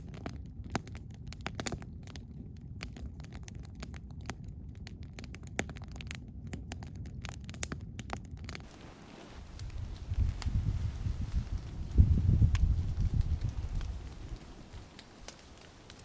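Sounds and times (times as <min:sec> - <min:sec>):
campfire crackling and popping: 0:00.0 - 0:16.0
quiet hiss: 0:08.6 - 0:16.0
wind buffeting microphone: 0:08.6 - 0:16.0
low rumble: 0:08.7 - 0:15.0.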